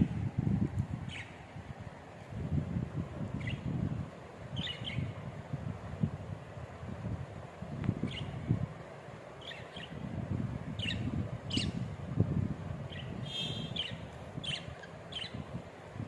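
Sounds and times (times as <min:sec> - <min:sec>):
budgerigars chirping: 0:12.9 - 0:15.4
buzzy bird call: 0:12.9 - 0:15.4.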